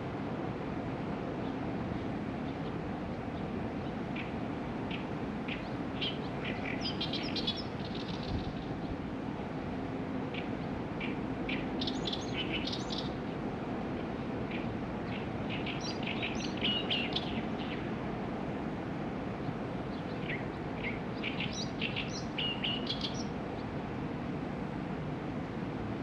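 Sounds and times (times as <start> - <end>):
low background noise: 0.0 - 26.0
small birds chirping: 2.4 - 9.0, 10.3 - 13.4, 14.0 - 17.9, 19.4 - 23.7.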